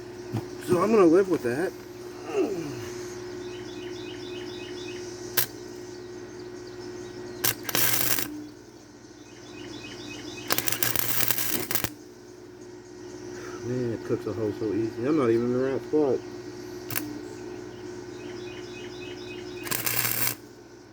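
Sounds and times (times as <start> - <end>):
welder hum: 0.0 - 12.6, 13.2 - 20.9
faint bird-like chirping: 0.0 - 20.9
welding arc crackle: 5.3 - 5.8, 7.4 - 8.6, 10.2 - 12.1, 16.9 - 17.2, 19.4 - 20.6.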